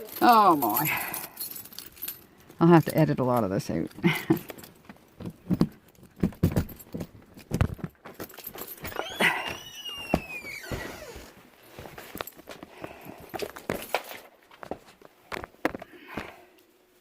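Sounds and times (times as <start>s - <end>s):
footsteps: 4.0s - 16.4s
knocks and bumps of grocery bags: 5.1s - 16.5s
high squeal sliding down: 8.9s - 11.3s.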